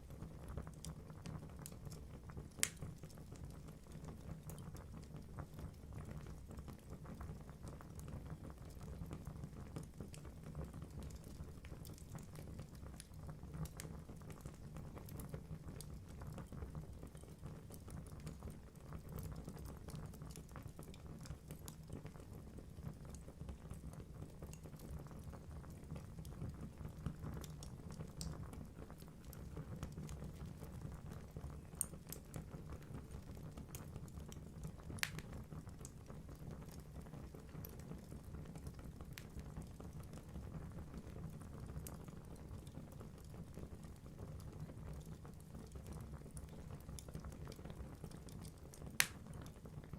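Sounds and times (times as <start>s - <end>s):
logs crackling in fire: 0.0s - 49.9s
low rumble of flame: 0.0s - 49.9s
sharp fire pops: 35.0s - 35.3s, 49.0s - 49.2s.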